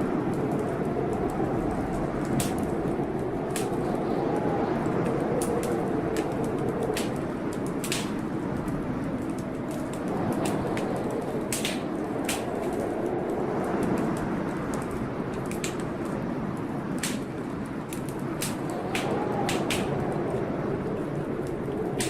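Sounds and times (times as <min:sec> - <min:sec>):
gusting blizzard wind: 0:00.0 - 0:22.0
wood fire crackling: 0:00.0 - 0:22.0.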